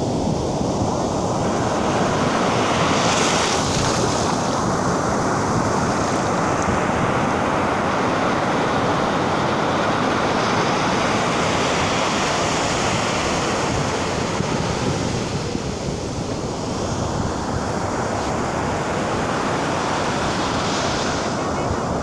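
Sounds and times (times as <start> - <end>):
ocean surf breaking on beach: 0.0 - 22.0.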